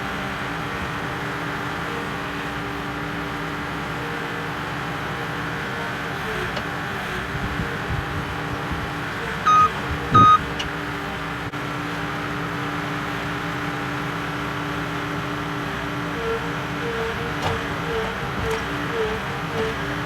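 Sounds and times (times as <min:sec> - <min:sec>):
engine running: 0:00.0 - 0:20.0
short electronic beeps: 0:09.5 - 0:10.4.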